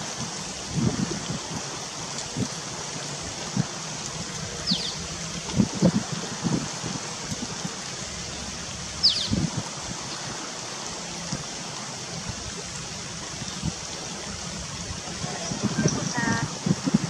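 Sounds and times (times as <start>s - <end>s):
stream water running: 0.0s - 17.0s
bird chirp: 4.7s - 5.0s, 9.0s - 9.4s.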